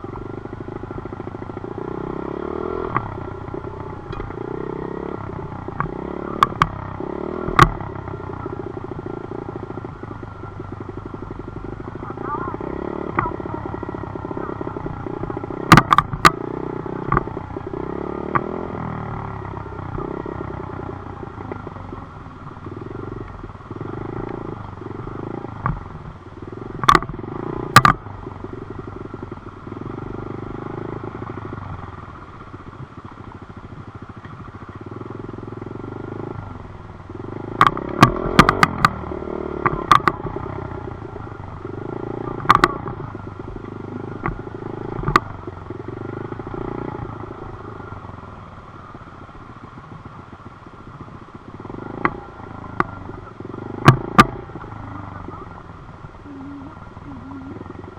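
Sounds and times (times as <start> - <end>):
dirt bike engine revving: 0.0 - 32.5, 34.5 - 50.0, 50.9 - 57.9
sharp knocks: 15.7 - 16.4.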